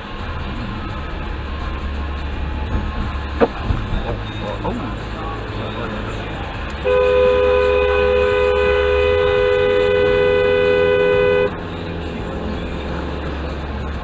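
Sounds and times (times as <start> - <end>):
car rumbling on road: 0.0 - 14.0
dual-tone car horn: 6.8 - 11.6.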